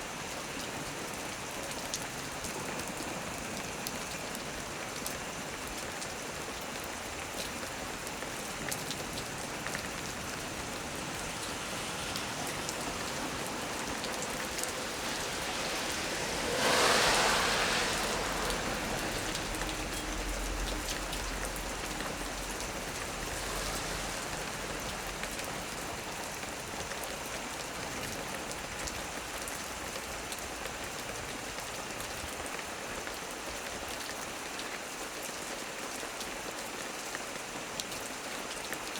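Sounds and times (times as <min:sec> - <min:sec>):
heavy rain falling: 0:00.1 - 0:38.9
thunder clap and rumble: 0:08.8 - 0:29.6.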